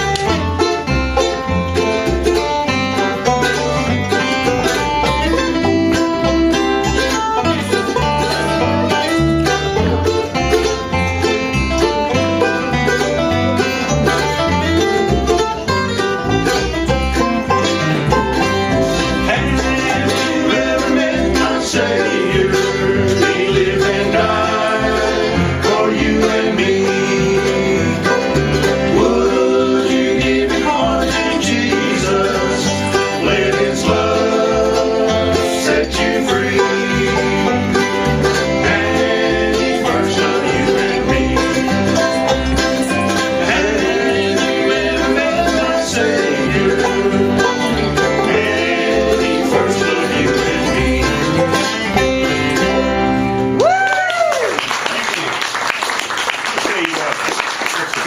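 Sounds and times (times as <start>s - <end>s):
steady bass beat: 0.0s - 29.2s
banjo picking: 0.0s - 53.8s
guitar: 0.0s - 56.6s.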